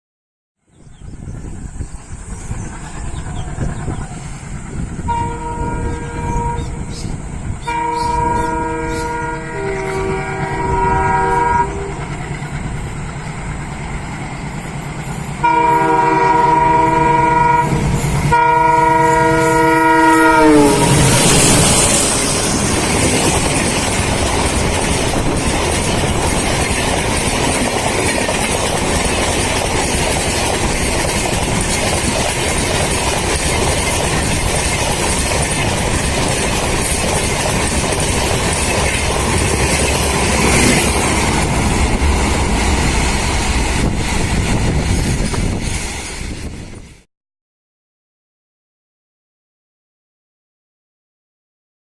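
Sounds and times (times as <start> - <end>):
wheels rushing on rails: 0.8 - 47.1
locomotive air horn blasts: 5.0 - 7.0, 7.6 - 12.1, 15.4 - 22.6
wheels clickety-clack over joints: 22.2 - 45.8.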